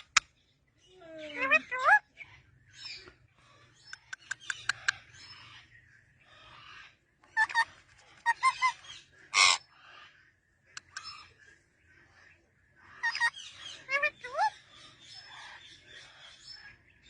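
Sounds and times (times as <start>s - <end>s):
parrot chirps: 7.3s - 9.6s, 13.0s - 14.5s
parrot squawk: 7.4s - 9.6s, 13.0s - 14.5s.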